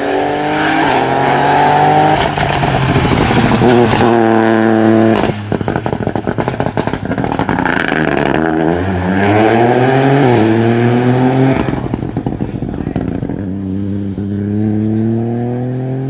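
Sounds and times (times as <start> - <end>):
rally car engine revving: 0.0 - 16.0
exhaust crackles: 2.1 - 8.7, 10.8 - 15.8.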